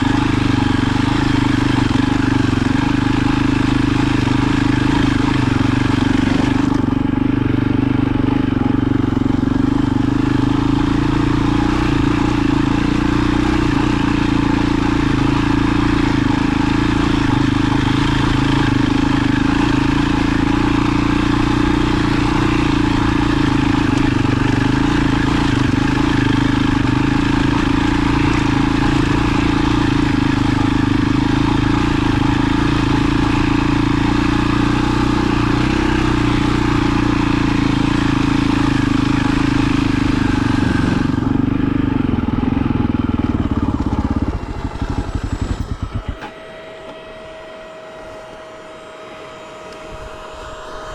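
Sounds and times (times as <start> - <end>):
vehicle engine running: 0.0 - 50.9.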